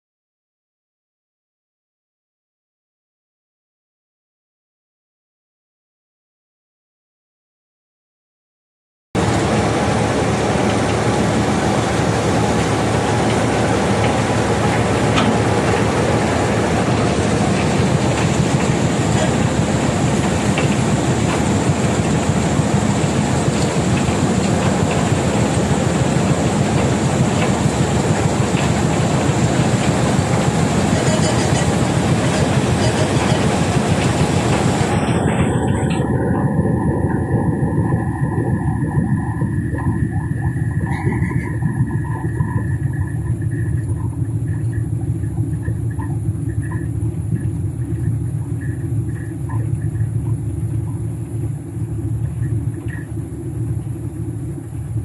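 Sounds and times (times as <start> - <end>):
stone crusher and excavator running: 9.2 - 36.6.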